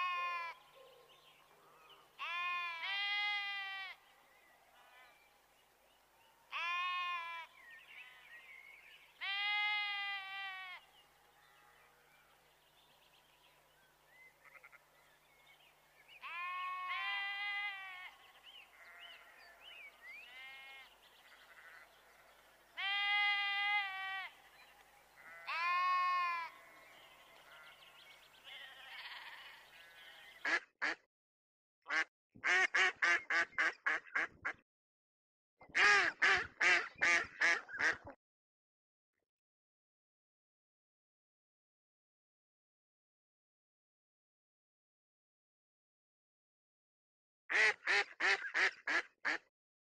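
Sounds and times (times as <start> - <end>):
sheep bleating: 0.0 - 0.6, 2.2 - 4.1, 6.5 - 8.4, 9.2 - 10.9, 14.4 - 14.8, 16.2 - 30.4
duck quacking: 30.4 - 31.0, 31.9 - 34.6, 35.7 - 38.2, 47.5 - 49.5.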